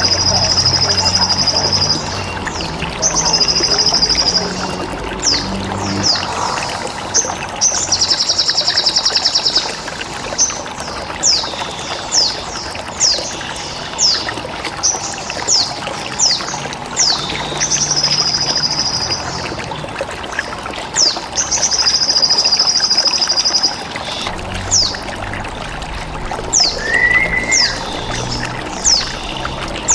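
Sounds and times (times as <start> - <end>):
trickle of water: 0.0 - 29.9
bird chirps sliding down in pitch: 26.6 - 28.1.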